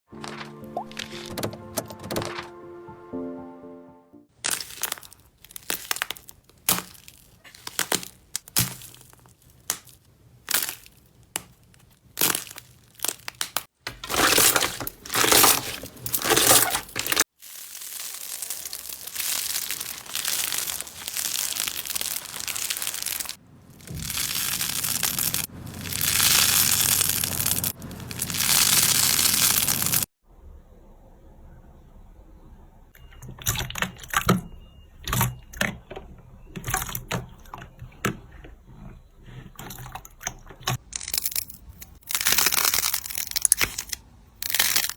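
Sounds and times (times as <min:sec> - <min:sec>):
slime crackling and popping: 0:04.4 - 0:30.1, 0:41.0 - 0:44.9.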